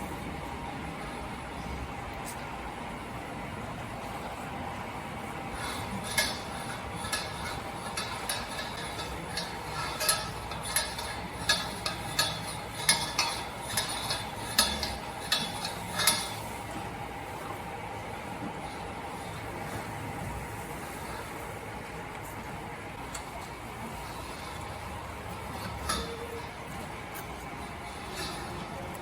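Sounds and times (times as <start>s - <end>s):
steady background hum: 0.0s - 29.0s
cow crunching feed: 5.7s - 17.6s.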